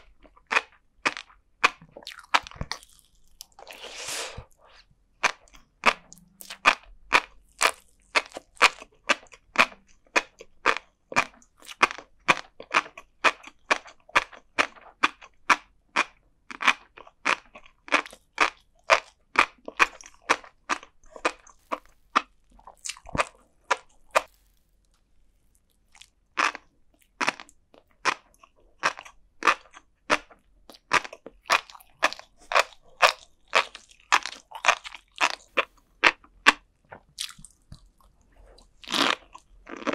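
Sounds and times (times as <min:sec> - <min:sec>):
chewing with crisp pops: 0:00.0 - 0:39.9.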